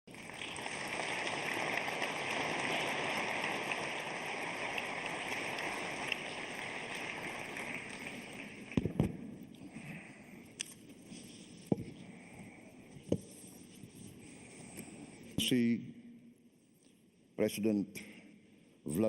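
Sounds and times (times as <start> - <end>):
audience applause: 0.1 - 9.0.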